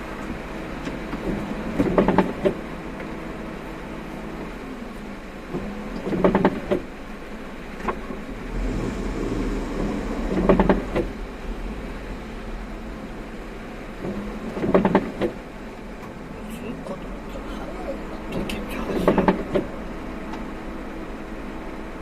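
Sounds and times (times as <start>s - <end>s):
road rumble inside car: 0.0s - 22.0s.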